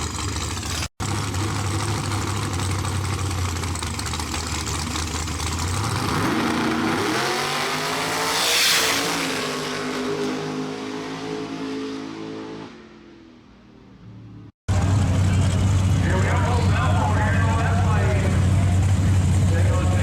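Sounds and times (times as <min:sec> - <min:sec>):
racing car engine revving: 0:05.4 - 0:13.5.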